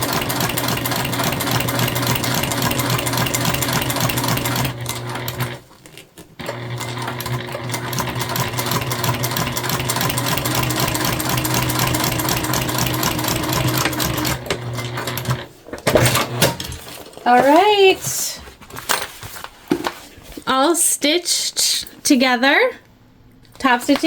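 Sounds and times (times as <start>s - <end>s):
sewing machine stitching: 0.0s - 16.8s.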